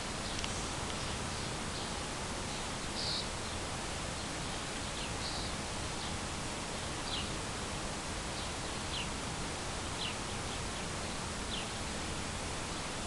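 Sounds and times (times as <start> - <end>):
steady outdoor hiss: 0.0 - 13.0
small bird chirping: 0.1 - 6.2, 7.0 - 7.4, 8.3 - 9.2, 9.8 - 11.8.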